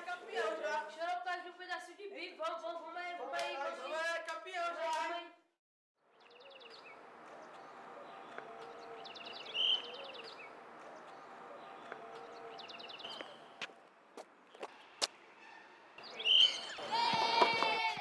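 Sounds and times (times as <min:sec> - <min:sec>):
bird rapid high trill: 0:15.4 - 0:16.9.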